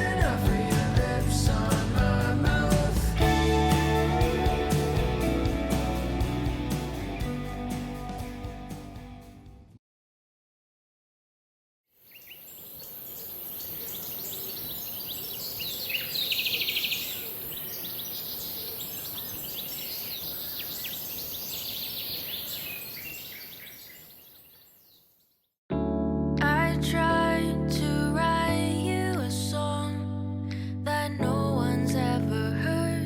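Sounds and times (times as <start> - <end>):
small birds chirping: 12.0 - 25.5.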